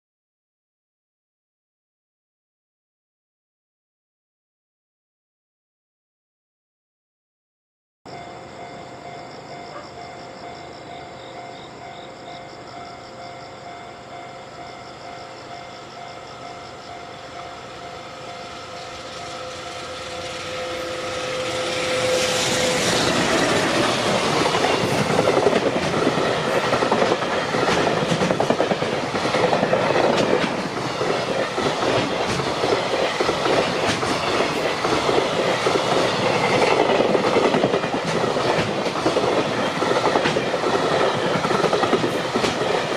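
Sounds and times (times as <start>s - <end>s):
electric locomotive passing: 8.1s - 42.9s
clickety-clack of train wheels: 15.5s - 42.9s.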